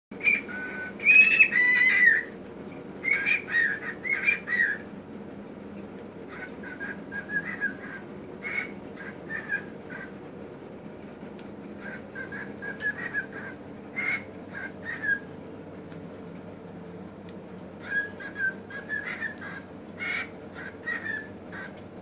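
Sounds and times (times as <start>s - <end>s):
pet bird whistling: 0.2s - 2.3s, 3.0s - 4.9s, 6.3s - 10.1s, 11.8s - 15.3s, 17.8s - 21.7s.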